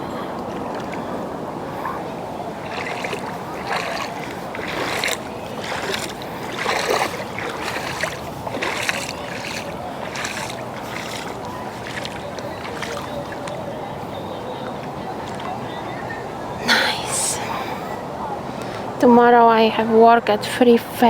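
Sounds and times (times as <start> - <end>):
lake water sloshing: 0.0 - 16.4.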